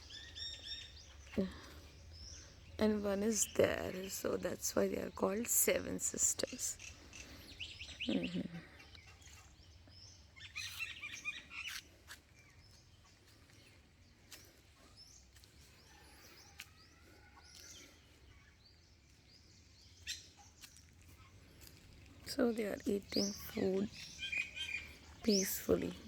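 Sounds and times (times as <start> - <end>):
birds harsh chattering: 0.0 - 26.0
faint bird chirps: 6.5 - 21.6, 22.2 - 26.0.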